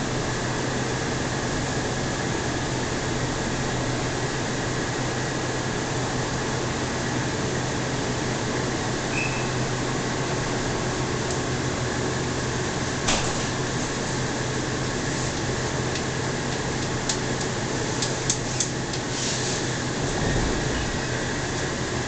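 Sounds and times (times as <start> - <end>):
train carriage hum and hiss: 0.0 - 22.0
faint high chirp: 9.1 - 9.6.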